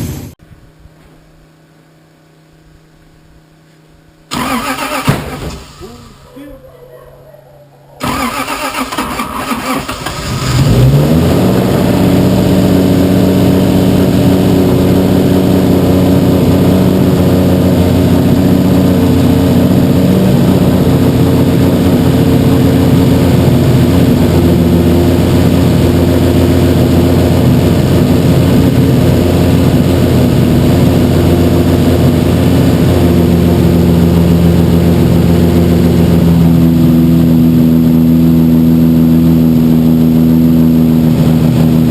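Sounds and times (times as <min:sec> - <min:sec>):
engine running steadily: 0:00.0 - 0:41.9
engine cranking on starter: 0:04.3 - 0:06.2, 0:08.0 - 0:11.6.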